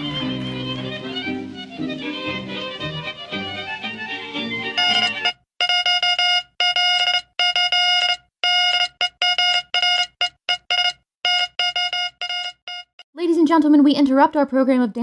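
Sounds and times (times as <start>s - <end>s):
buzzy electronic beeps: 4.8s - 5.3s.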